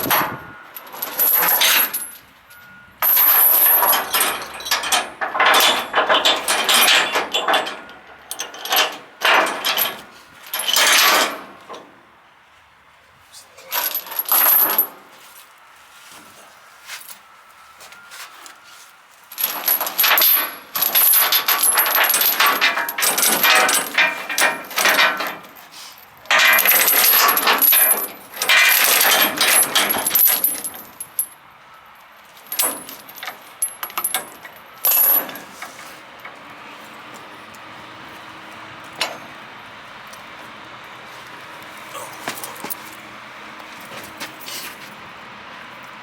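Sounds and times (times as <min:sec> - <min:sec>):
steel chain rattling and clanking: 0:00.0 - 0:11.9, 0:13.6 - 0:15.1, 0:19.3 - 0:31.4, 0:32.2 - 0:36.4, 0:38.8 - 0:39.4, 0:41.9 - 0:43.1.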